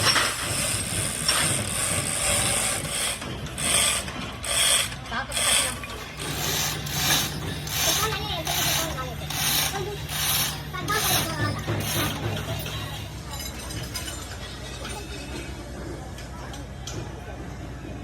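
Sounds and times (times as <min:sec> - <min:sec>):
hand tool scraping metal: 0:00.0 - 0:13.0.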